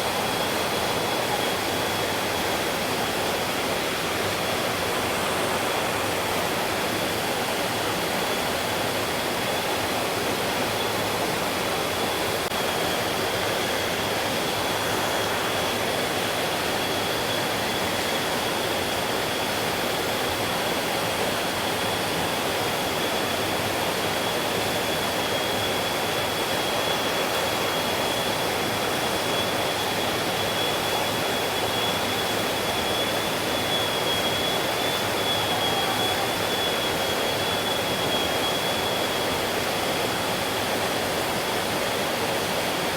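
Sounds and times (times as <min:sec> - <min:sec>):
faint high-pitched tone: 0:33.6 - 0:38.3.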